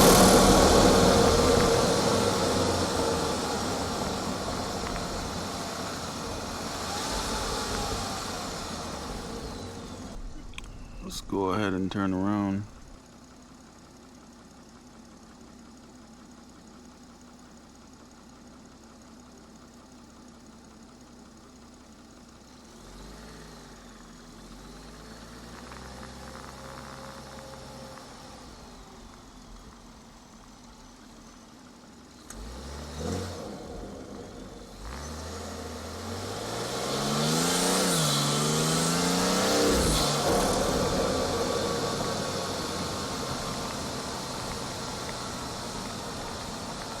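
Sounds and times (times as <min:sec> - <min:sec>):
car engine accelerating: 0:00.0 - 0:13.0, 0:22.5 - 0:31.4, 0:32.2 - 0:47.0.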